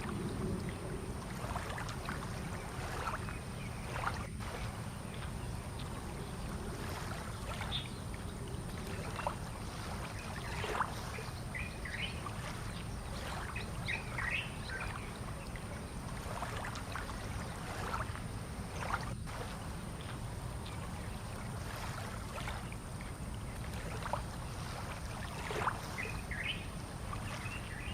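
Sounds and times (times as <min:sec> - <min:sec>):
low rumble of harbour ambience: 0:00.0 - 0:27.9
birds chirping: 0:10.2 - 0:16.0, 0:25.8 - 0:27.9.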